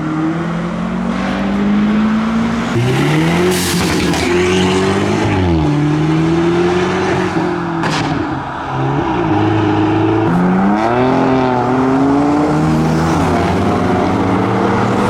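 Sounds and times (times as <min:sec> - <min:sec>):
car engines revving: 0:00.0 - 0:15.0
sharp crack: 0:01.3 - 0:05.0.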